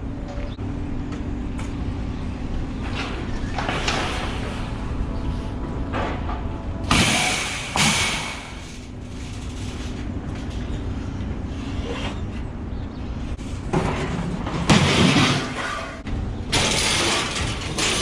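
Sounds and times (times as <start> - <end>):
low engine rumble: 0.0 - 18.0
scrap metal crashing and scraping: 5.9 - 10.1, 13.5 - 18.0.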